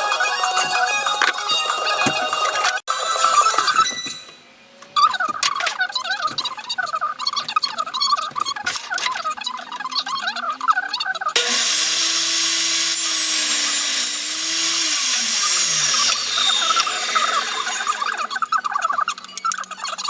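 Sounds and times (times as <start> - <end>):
table saw whining: 0.0 - 4.5, 11.4 - 18.4.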